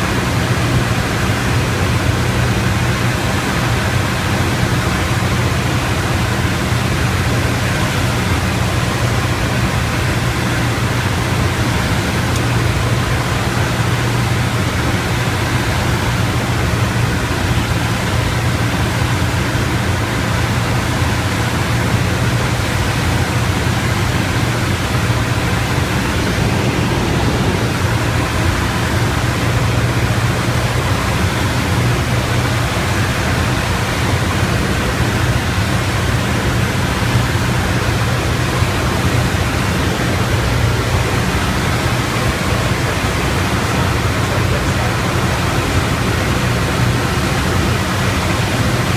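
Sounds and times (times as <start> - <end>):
propeller engine droning: 0.0 - 48.9
airflow rushing: 20.9 - 48.8.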